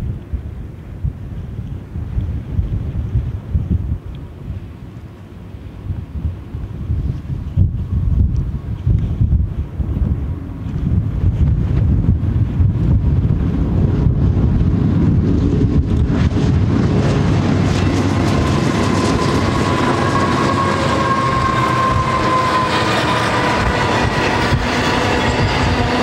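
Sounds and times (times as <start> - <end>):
diesel locomotive engines rumbling: 0.0 - 26.0
high thin whine: 12.9 - 26.0
freight cars rolling past: 14.6 - 26.0.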